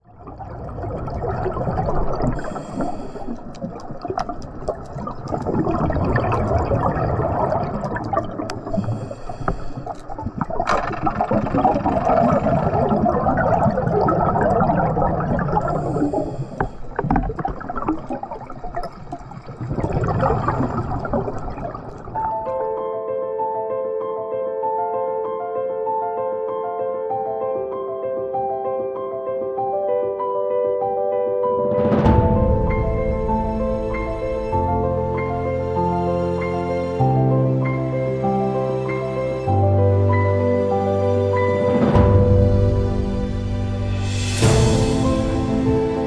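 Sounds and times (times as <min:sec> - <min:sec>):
bubbles rumbling and gurgling: 0:00.0 - 0:22.8, 0:32.0 - 0:46.0
regulator inhalation hiss: 0:02.4 - 0:03.5, 0:08.6 - 0:10.0, 0:15.7 - 0:17.0.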